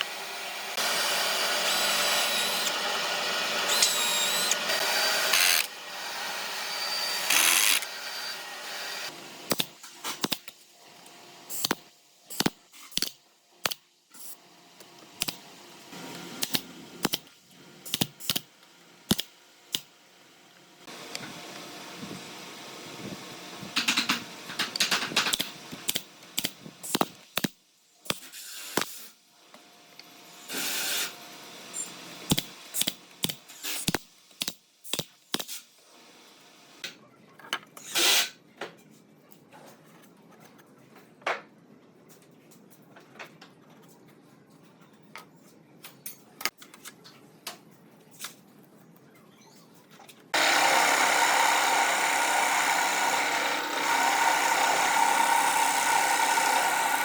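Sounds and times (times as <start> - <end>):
machine running loudly: 50.4 - 57.0
short tool bursts: 50.4 - 57.0.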